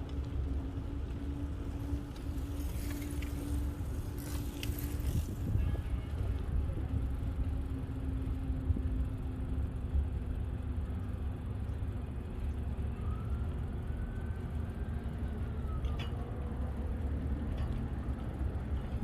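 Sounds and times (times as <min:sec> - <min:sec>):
faint rising and falling whine: 0:00.0 - 0:19.0
faint steady hum: 0:00.0 - 0:19.0
wind rumble on microphone: 0:00.0 - 0:19.0.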